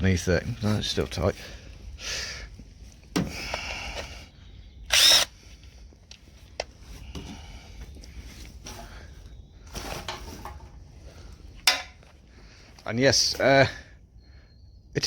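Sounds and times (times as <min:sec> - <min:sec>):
impact wrench burst: 0:04.9 - 0:05.3.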